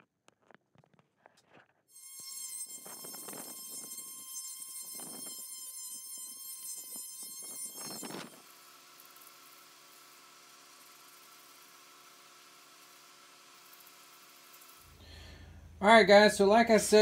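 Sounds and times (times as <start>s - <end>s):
power tool whining on wood: 1.9s - 15.7s
low steady hum: 14.9s - 17.0s.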